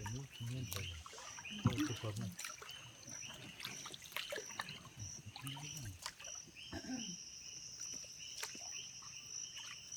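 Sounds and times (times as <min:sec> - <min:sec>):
canoe paddle knocks and splashes: 0:00.0 - 0:06.3
insects buzzing: 0:00.0 - 0:09.9.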